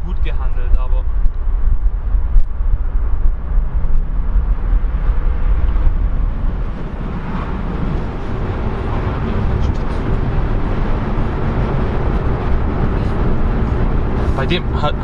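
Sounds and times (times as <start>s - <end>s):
car engine rumbling: 0.0s - 15.0s
road noise inside car: 0.0s - 15.0s.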